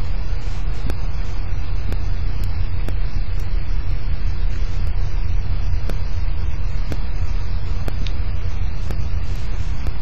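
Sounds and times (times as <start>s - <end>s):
sharp ticks: 0.7s - 1.2s, 1.8s - 4.0s, 6.7s - 8.2s, 8.8s - 10.0s.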